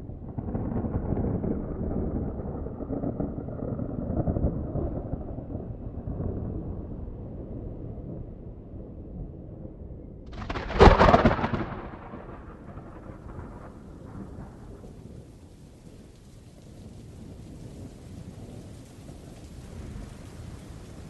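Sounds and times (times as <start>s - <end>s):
thunderclap rumbling: 0.0s - 21.0s
rain falling: 10.3s - 21.0s.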